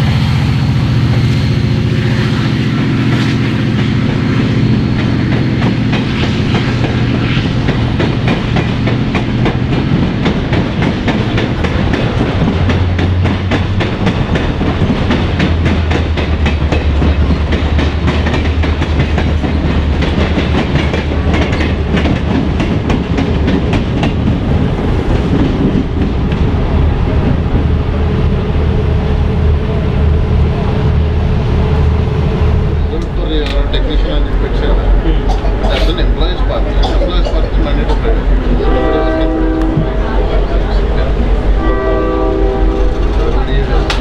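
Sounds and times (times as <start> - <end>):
train wheels clicking: 0.0 - 44.0
low drone: 24.5 - 44.0.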